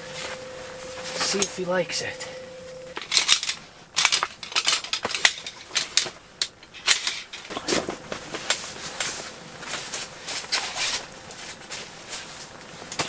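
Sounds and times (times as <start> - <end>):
camping gear rustling: 0.0 - 1.8, 2.7 - 13.0
clicks and knocks of camping gear: 3.0 - 13.0.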